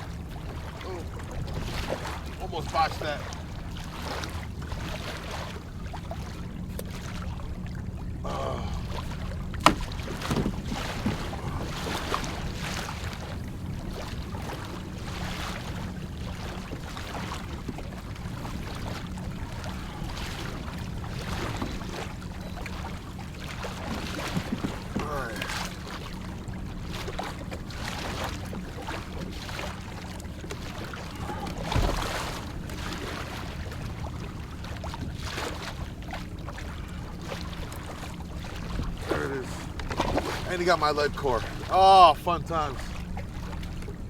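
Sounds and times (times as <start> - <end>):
handling knocks and clicks: 9.6 - 11.3.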